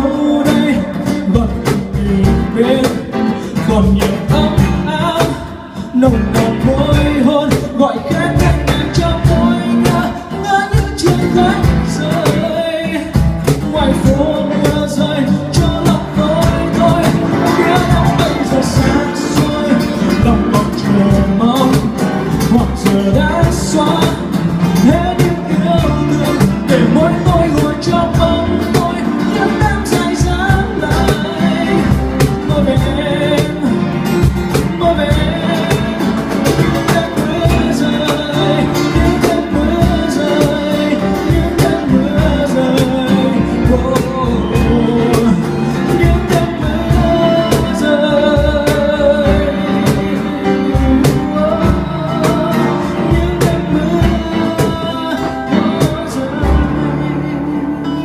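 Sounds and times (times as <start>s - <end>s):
bass guitar: 0.0s - 58.0s
drums keeping a beat: 0.0s - 58.0s
guitar melody: 0.0s - 58.0s.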